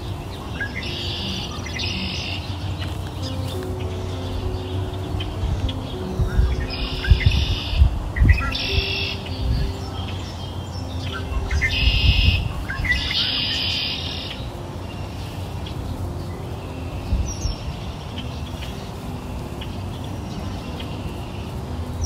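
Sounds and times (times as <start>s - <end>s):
birds twittering: 0.0s - 22.0s.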